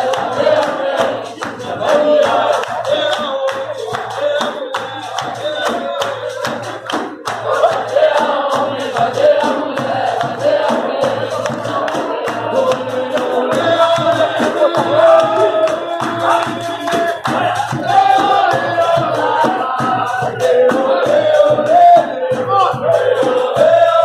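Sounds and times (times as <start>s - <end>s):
group of voices singing: 0.0s - 24.0s
sharp percussive hits: 0.0s - 24.0s.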